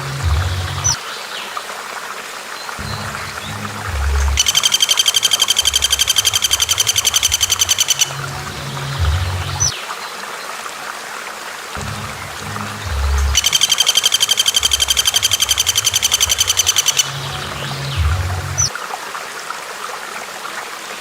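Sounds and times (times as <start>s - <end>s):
bird rattling trill: 4.4s - 8.1s, 13.3s - 17.1s.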